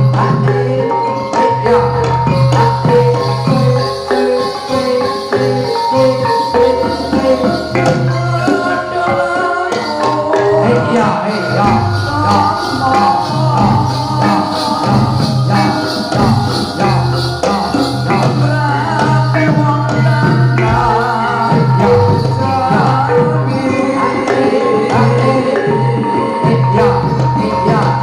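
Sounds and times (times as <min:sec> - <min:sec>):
gamelan ensemble playing: 0:00.0 - 0:28.0
percussion: 0:00.0 - 0:28.0
wavering sung vocal: 0:00.0 - 0:28.0.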